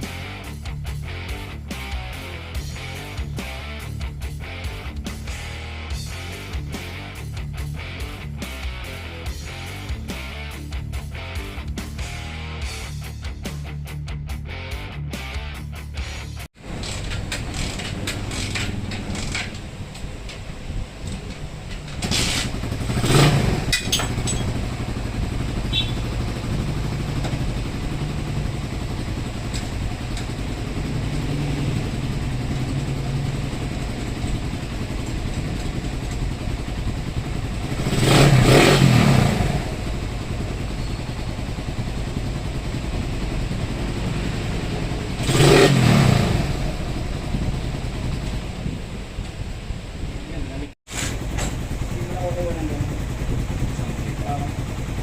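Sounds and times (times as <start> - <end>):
motorcycle engine idling: 16.6 - 45.6, 46.2 - 55.0
engine revving: 22.0 - 48.8.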